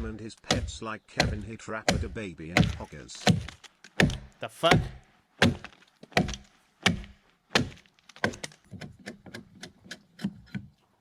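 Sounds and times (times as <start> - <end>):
tool striking wood: 0.0 - 10.6.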